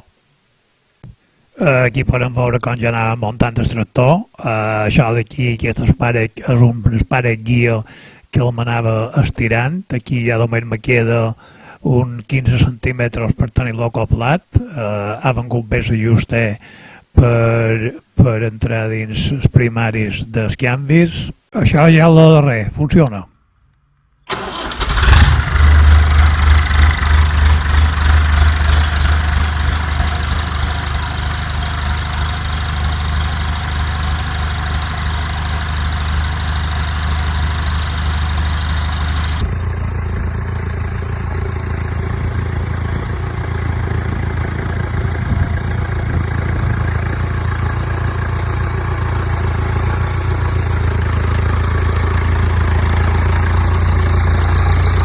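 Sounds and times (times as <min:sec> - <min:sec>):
tractor engine idling: 0:24.3 - 0:55.0.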